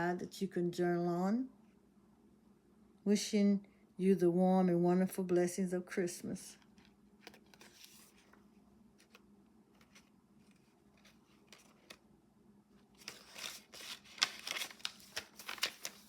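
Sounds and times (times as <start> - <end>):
paper rustling and crinkling: 6.6 - 12.0, 12.8 - 16.0.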